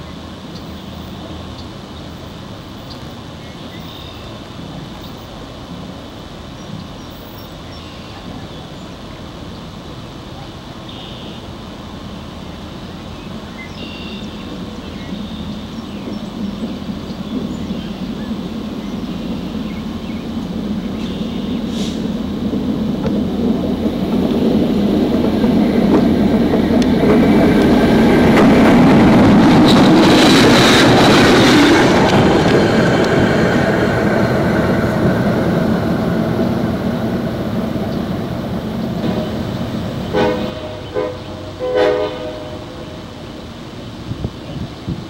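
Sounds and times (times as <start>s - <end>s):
train rumbling over track: 0.0s - 45.0s
train horn blasts: 40.0s - 43.0s.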